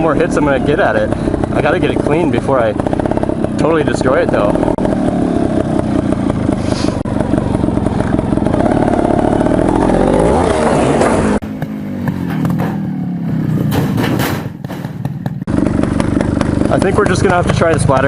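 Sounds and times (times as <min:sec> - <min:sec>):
motorcycle engine revving: 0:00.0 - 0:18.0
sharp knocks: 0:11.0 - 0:18.0.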